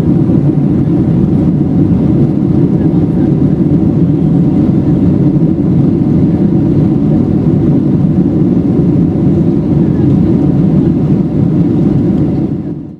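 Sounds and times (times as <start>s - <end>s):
jet engines roaring: 0.0s - 12.9s.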